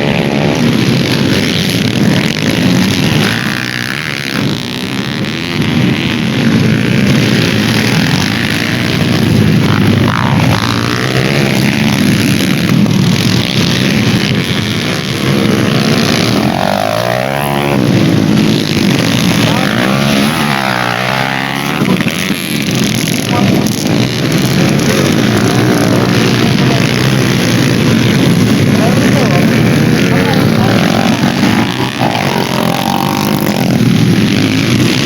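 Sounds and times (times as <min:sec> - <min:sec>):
dirt bike engines revving: 0:00.0 - 0:35.0.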